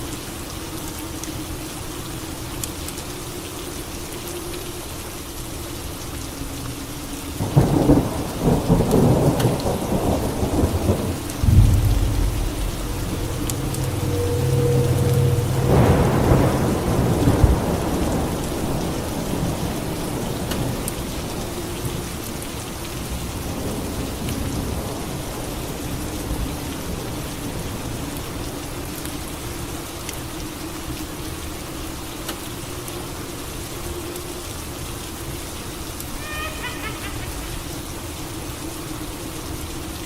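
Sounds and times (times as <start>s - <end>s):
steady rain: 0.0s - 40.0s
thunder rumbling: 7.4s - 21.5s.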